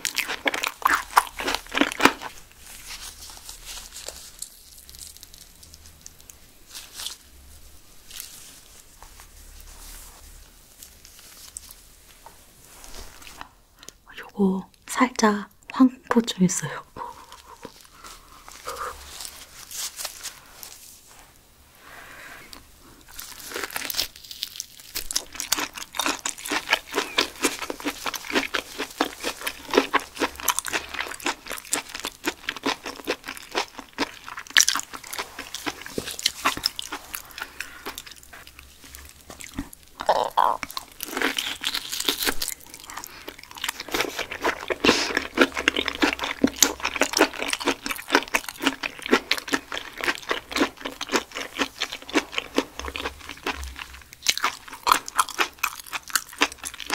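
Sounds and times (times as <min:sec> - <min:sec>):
wet chewing with crisp clicks: 0:00.0 - 0:02.4, 0:23.9 - 0:56.9.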